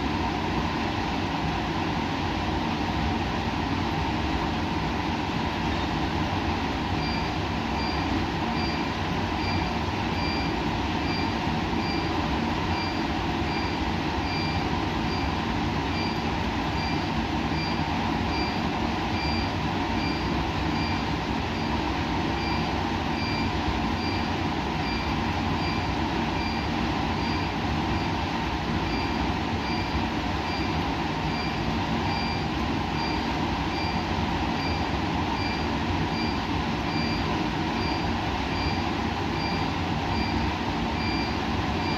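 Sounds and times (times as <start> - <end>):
equipment hum and hiss: 0.0 - 41.9
short high-pitched beeps: 8.6 - 10.5, 19.2 - 21.0, 28.8 - 30.7, 31.3 - 32.4, 33.0 - 34.0, 34.6 - 34.8, 35.4 - 37.2, 37.8 - 38.8, 39.4 - 40.4, 41.0 - 41.9.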